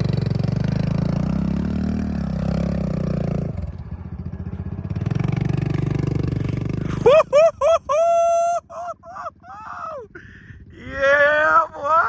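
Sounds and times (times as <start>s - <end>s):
dirt bike engine revving: 0.0s - 3.7s, 4.9s - 7.7s
dirt bike engine idling: 0.0s - 12.0s.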